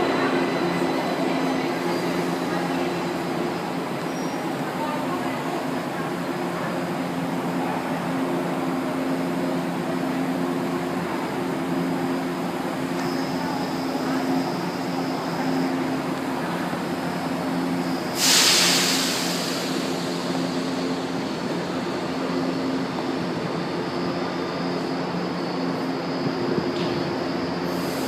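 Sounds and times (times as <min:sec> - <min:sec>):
train mechanical hum: 0:00.0 - 0:28.0
loud hiss: 0:17.8 - 0:21.2.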